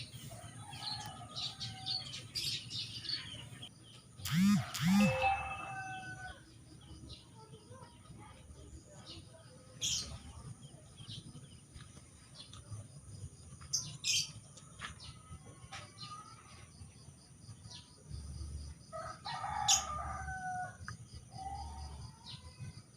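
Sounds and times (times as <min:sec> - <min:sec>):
small birds chirping: 0:00.0 - 0:05.4
rooster crowing: 0:04.3 - 0:06.4, 0:19.0 - 0:20.8.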